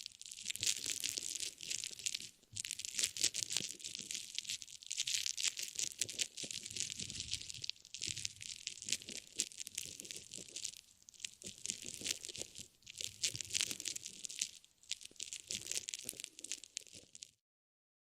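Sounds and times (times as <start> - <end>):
crinkly material being squeezed: 0.0 - 17.4.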